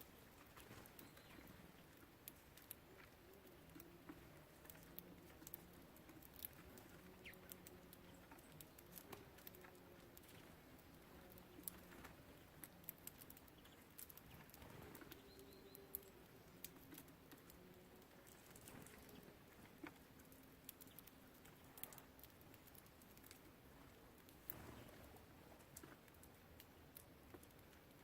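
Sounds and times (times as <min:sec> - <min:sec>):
birds tapping on wooden feeder: 0:00.4 - 0:23.5
bird chirp: 0:00.6 - 0:04.3, 0:06.4 - 0:09.0, 0:11.4 - 0:16.8.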